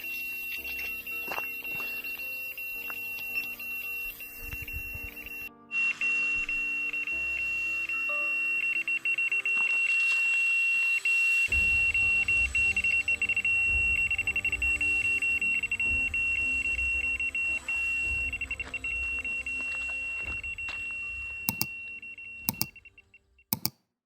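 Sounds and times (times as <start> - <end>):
bite alarm beeping: 21.5 - 21.7, 22.5 - 22.7.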